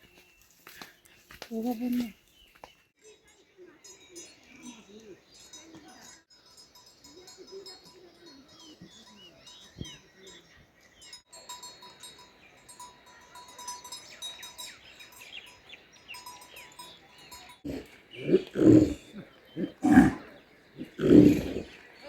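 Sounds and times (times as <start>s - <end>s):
small birds chirping: 0.0s - 22.0s
loud animal calls: 17.7s - 21.8s.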